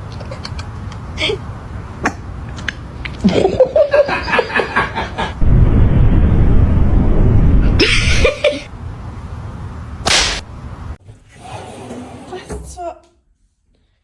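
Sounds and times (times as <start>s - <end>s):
loud low rumbling: 5.4s - 8.7s
person laughing: 7.8s - 8.7s.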